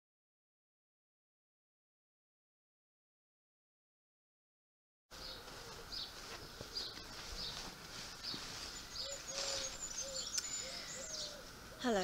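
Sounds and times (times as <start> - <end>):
birds chirping: 5.1 - 12.0.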